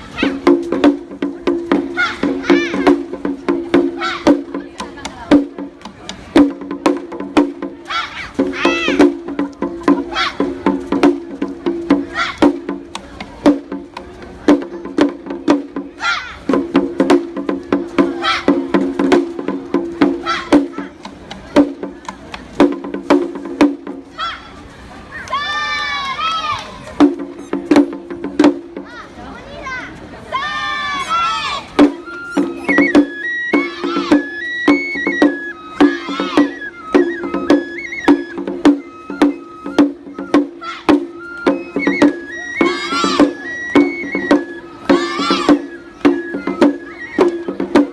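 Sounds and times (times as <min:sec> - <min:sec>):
bamboo flute melody: 0:00.0 - 0:05.4, 0:06.4 - 0:24.4, 0:30.3 - 0:47.9
sharp percussion strikes: 0:00.0 - 0:24.0, 0:31.8 - 0:47.9
short high up-and-down calls: 0:31.1 - 0:47.9.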